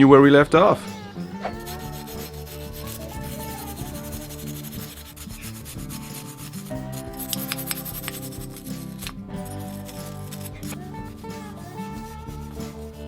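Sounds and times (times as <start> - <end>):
soft background music: 0.0 - 13.0
rubbing scraping sound: 1.4 - 13.0.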